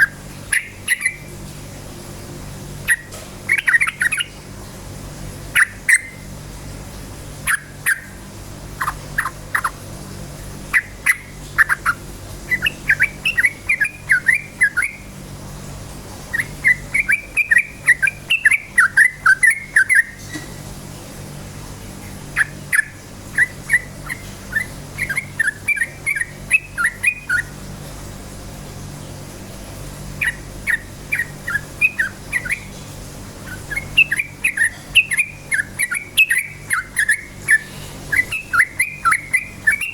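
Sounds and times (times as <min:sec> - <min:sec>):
bird singing fast chattering chirps: 0:00.0 - 0:01.4, 0:02.8 - 0:04.4, 0:05.5 - 0:06.4, 0:07.4 - 0:09.8, 0:10.5 - 0:15.2, 0:16.3 - 0:20.4, 0:22.0 - 0:27.6, 0:30.0 - 0:32.8, 0:33.4 - 0:39.9
steady low hum: 0:00.0 - 0:39.9.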